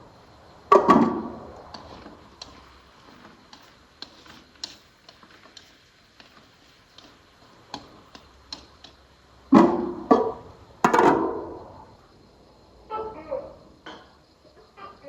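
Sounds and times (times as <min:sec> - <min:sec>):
light clicks and taps: 0:01.6 - 0:09.0.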